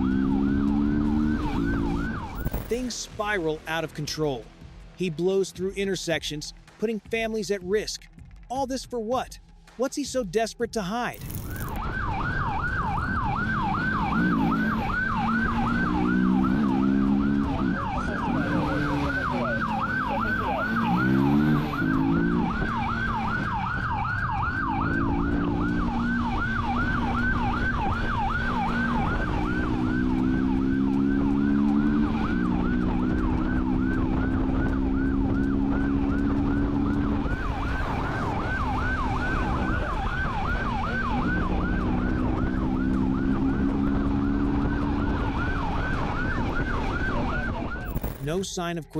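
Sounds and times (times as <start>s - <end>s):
car engine accelerating: 0.0s - 2.9s, 12.0s - 48.2s
police siren yelping: 0.0s - 2.9s, 11.7s - 48.2s.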